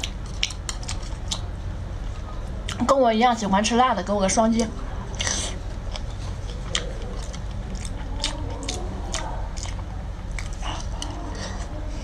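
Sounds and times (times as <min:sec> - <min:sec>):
close chewing: 0:00.0 - 0:01.5, 0:05.0 - 0:12.0.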